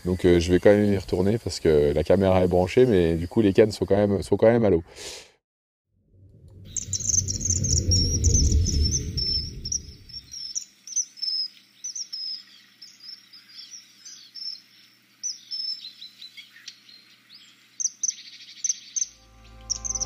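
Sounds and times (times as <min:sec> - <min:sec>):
rapid bird trill: 0:06.7 - 0:17.1, 0:17.8 - 0:20.0
small birds chirping: 0:06.7 - 0:20.0.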